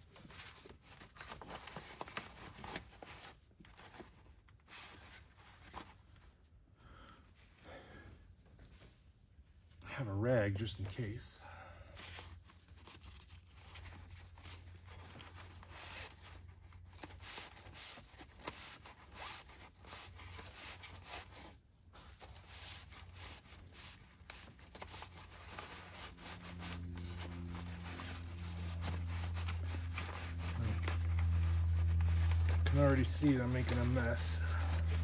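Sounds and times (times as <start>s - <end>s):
plastic rustling and scraping: 0.0s - 6.4s, 12.0s - 35.0s
steady low hum: 21.5s - 35.0s.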